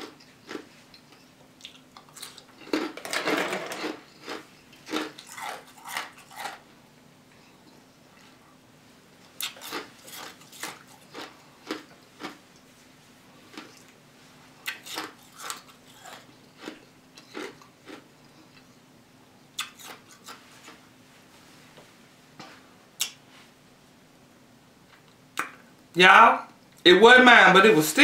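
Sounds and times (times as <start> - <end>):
ice crunched between teeth: 3.7 - 6.6, 9.4 - 12.4.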